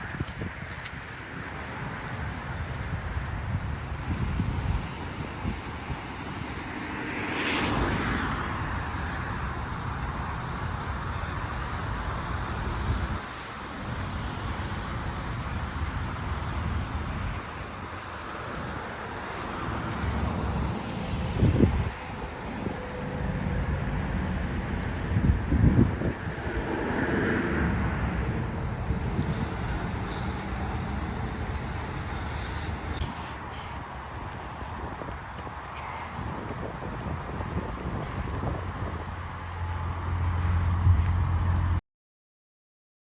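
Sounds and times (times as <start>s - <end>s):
highway traffic noise: 0.0s - 41.8s
wind buffeting microphone: 0.0s - 41.8s
vehicle passing: 19.5s - 41.8s.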